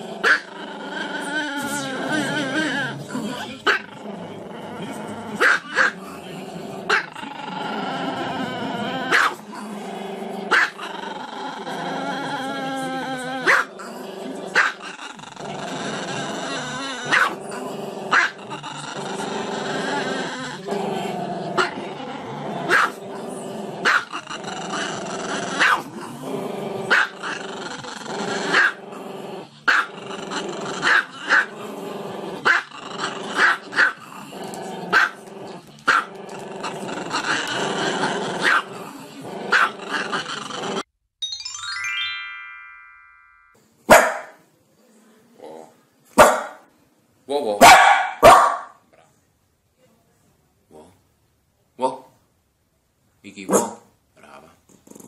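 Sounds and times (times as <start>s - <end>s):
small dog barking: 5.4s - 6.0s, 9.1s - 9.4s, 10.5s - 10.8s, 13.5s - 13.7s, 17.1s - 17.4s, 22.7s - 23.0s, 25.6s - 25.9s, 34.9s - 35.2s, 39.5s - 39.8s, 43.9s - 44.4s, 46.2s - 46.6s, 47.6s - 48.8s, 53.5s - 53.9s.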